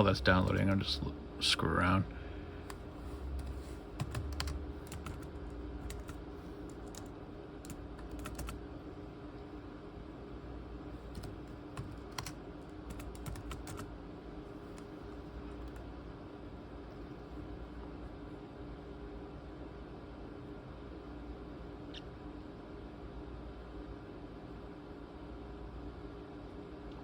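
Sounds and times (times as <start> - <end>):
steady low hum: 0.0 - 27.0
laptop keyboard typing: 2.6 - 8.6, 11.0 - 13.9, 15.5 - 15.9.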